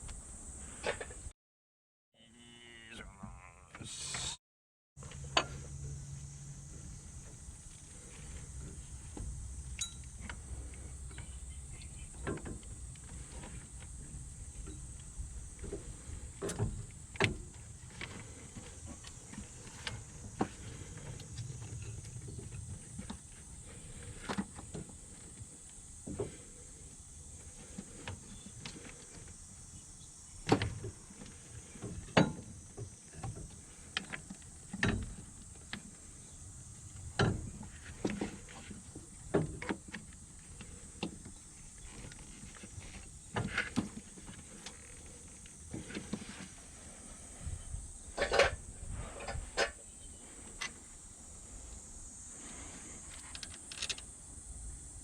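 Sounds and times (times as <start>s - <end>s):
steady high hiss: 40.0s - 55.0s.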